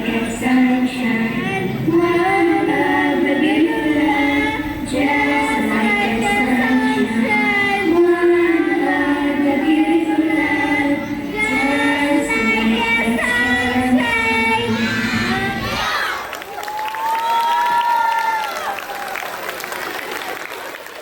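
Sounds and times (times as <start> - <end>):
children singing in unison: 0.0 - 16.3.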